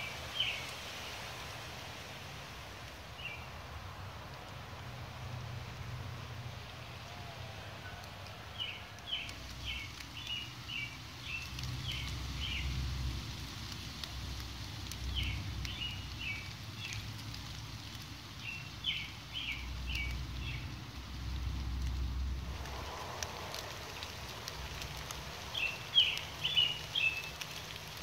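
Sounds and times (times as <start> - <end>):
light rain patter: 0.0 - 28.0
songbird chirping: 0.0 - 28.0
low rumble: 19.6 - 27.5.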